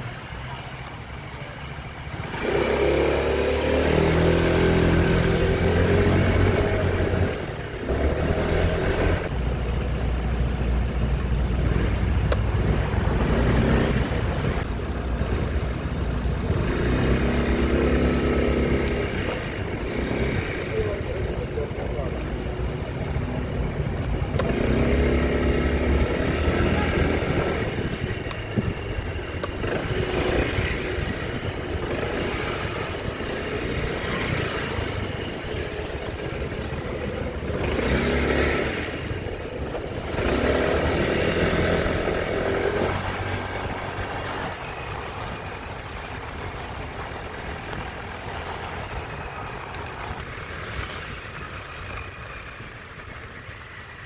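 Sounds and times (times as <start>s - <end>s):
traffic engines: 0.0s - 54.0s.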